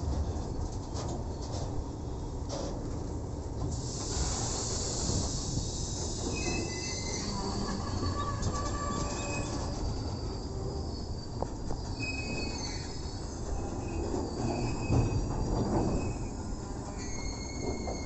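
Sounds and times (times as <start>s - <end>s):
freight train rumble: 0.0s - 18.0s
high wheel squeals: 4.2s - 18.0s.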